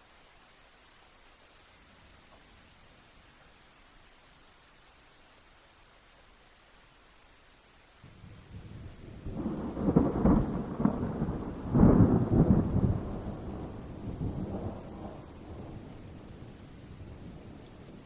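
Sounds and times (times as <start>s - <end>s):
rolling thunder: 8.1s - 18.0s.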